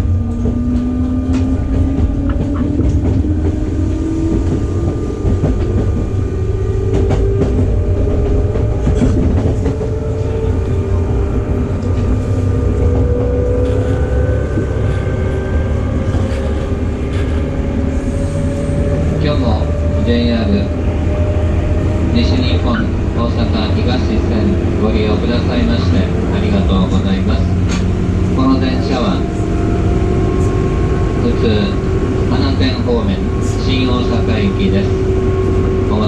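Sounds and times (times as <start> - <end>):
traction motor whine rising: 0.0 - 22.2
wheels rumbling on rail: 0.0 - 36.0.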